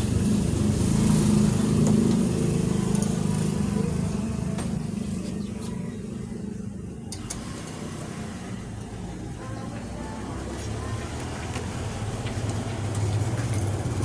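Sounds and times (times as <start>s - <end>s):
motorcycle engine running: 0.0s - 7.1s, 10.2s - 14.0s.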